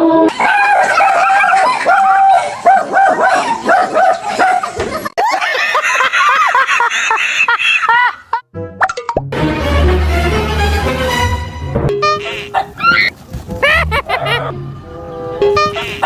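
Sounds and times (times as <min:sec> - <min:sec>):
dogs barking and yelping: 0:00.3 - 0:08.1, 0:12.2 - 0:14.5.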